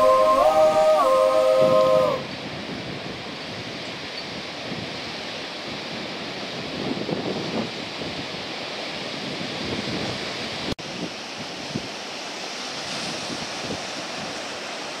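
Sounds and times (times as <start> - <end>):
wind buffeting microphone: 0.0 - 12.0
ocean surf washing: 0.0 - 15.0.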